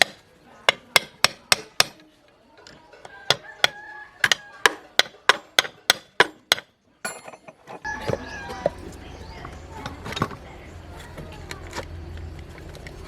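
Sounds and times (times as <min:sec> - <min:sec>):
hammer striking metal: 0:05.0 - 0:07.6.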